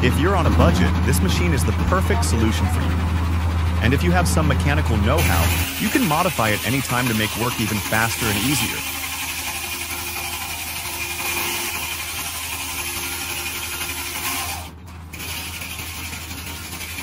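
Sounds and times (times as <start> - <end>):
tractor engine drone: 0.0 - 17.0
circular saw ripping log: 5.2 - 17.0.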